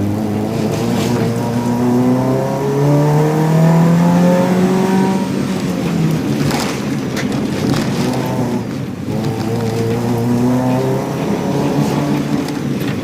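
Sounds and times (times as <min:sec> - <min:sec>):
car engine at full throttle: 0:00.0 - 0:13.0
engine knocks: 0:05.2 - 0:13.0.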